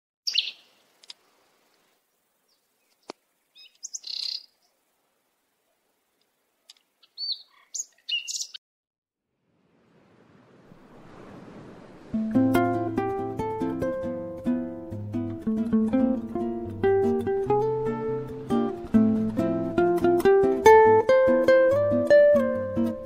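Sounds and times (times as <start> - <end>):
birds chirping: 0.3 - 4.8, 6.6 - 8.6
plucked string music: 12.2 - 23.0.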